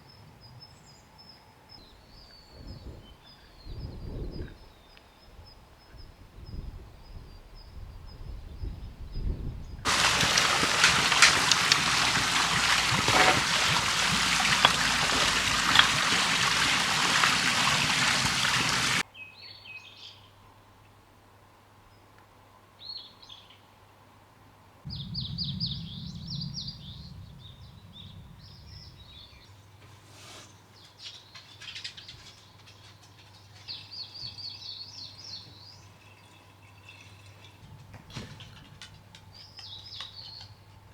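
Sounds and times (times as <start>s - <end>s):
small birds chirping: 9.9s - 19.0s, 24.9s - 29.8s, 30.4s - 37.6s, 39.3s - 40.8s.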